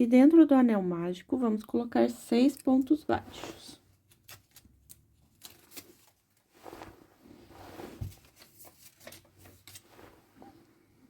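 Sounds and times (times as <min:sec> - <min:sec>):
yarn rustling: 0:05.4 - 0:10.9.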